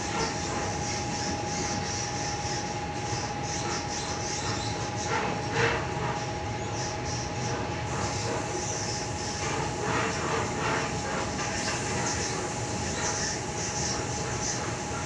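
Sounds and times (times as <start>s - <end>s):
electric train rumble: 0.0s - 15.0s.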